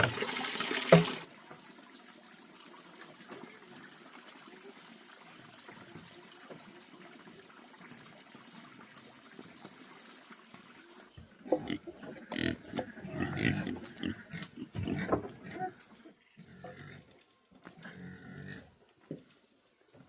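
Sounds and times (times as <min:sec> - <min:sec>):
water trickling faintly: 0:00.0 - 0:20.0
pigs grunting and squealing: 0:11.4 - 0:18.8.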